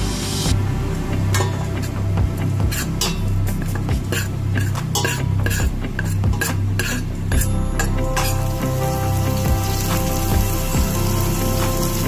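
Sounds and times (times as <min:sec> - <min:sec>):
utensil scraping and tapping metal pot: 0:02.7 - 0:08.4
food sizzling in oil: 0:07.8 - 0:12.0.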